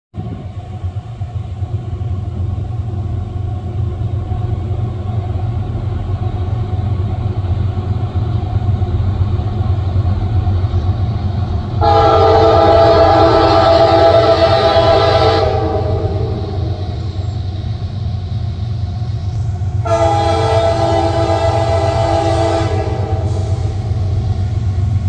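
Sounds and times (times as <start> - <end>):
diesel locomotive rumble: 0.1 - 25.0
locomotive air horn: 11.8 - 17.0, 19.8 - 23.9.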